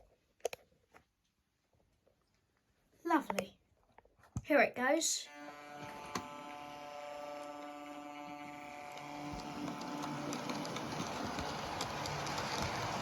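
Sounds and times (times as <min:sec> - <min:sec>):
model train motor hum: 0:05.3 - 0:13.0
wheels rolling on track: 0:05.8 - 0:13.0
clicks over rail joints: 0:08.9 - 0:13.0.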